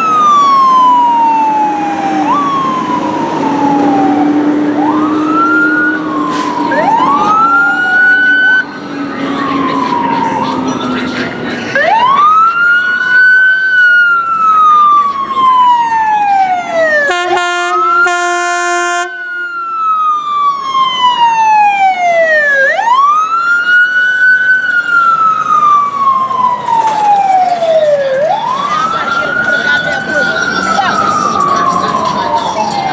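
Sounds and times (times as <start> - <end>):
fire truck siren wailing: 0.0 - 32.9
deep horn blast: 17.1 - 19.6.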